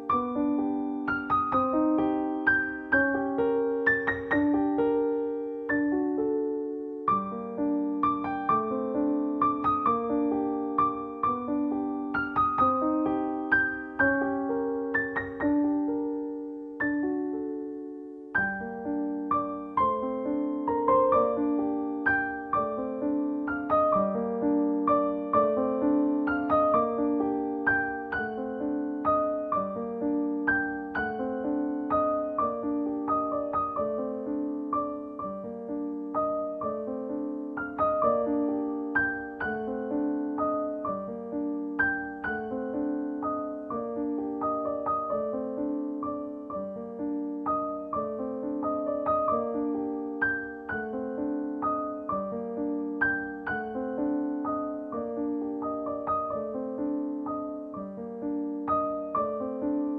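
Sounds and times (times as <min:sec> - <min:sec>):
solo piano music: 0:00.0 - 0:59.9.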